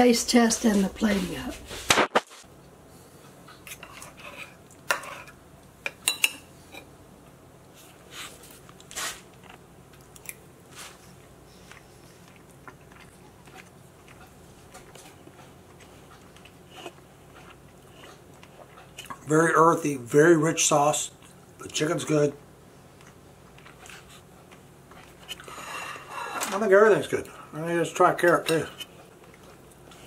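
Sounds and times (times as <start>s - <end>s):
person chewing food: 7.8s - 19.3s, 22.8s - 26.4s, 28.7s - 30.0s.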